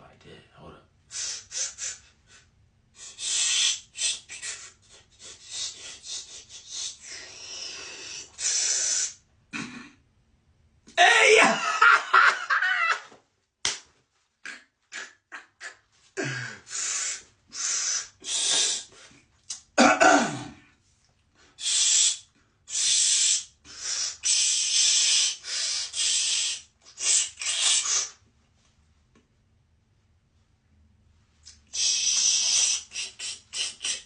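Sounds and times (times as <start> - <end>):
falling voiced sound: 11.0 - 11.9.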